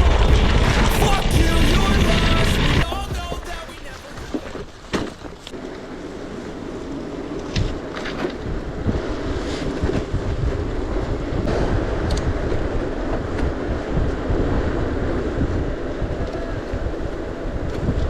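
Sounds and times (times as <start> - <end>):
bike rolling on gravel: 0.0 - 9.4
wind buffeting microphone: 0.0 - 18.0.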